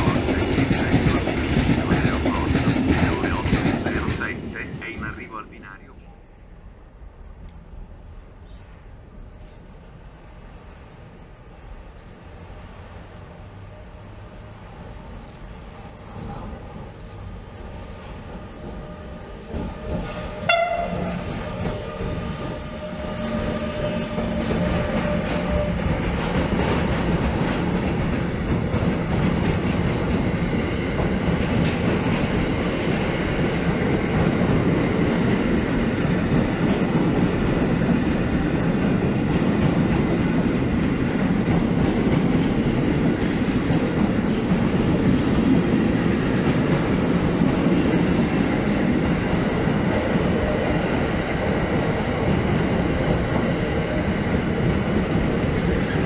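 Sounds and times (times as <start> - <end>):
freight train wheels rumbling: 0.0 - 5.8, 13.2 - 56.0
locomotive horn toot: 20.1 - 22.1.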